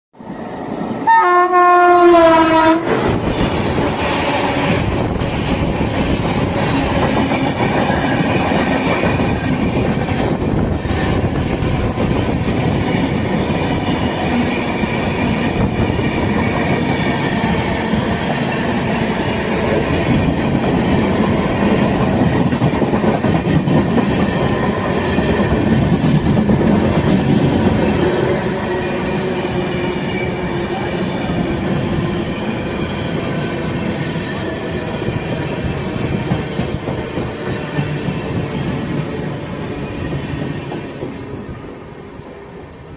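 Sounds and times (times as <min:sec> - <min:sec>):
train wheels rumbling on rails: 0:00.2 - 0:42.9
train horn blast: 0:01.0 - 0:03.0.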